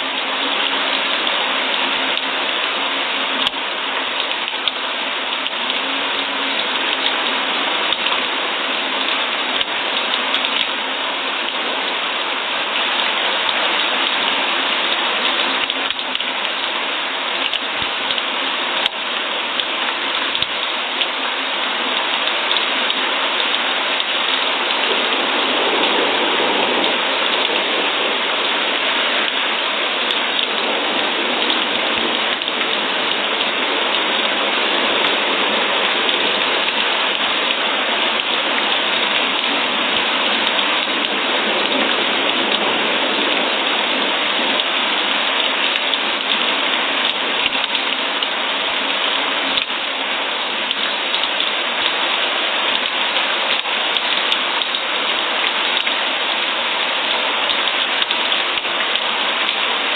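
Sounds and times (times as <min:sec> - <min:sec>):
sharp raindrop ticks: 0:00.0 - 0:59.9
steady rain falling: 0:00.0 - 0:59.9.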